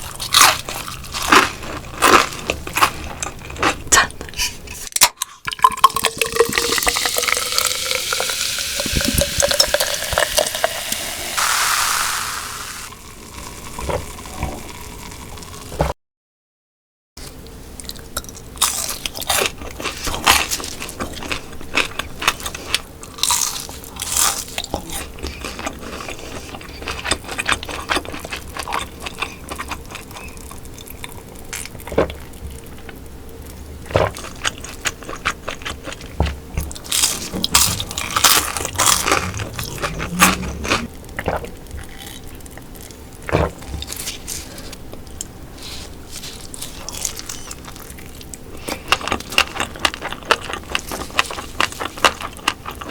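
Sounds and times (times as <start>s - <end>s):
crunchy food chewing: 0.0s - 4.6s, 17.8s - 52.9s.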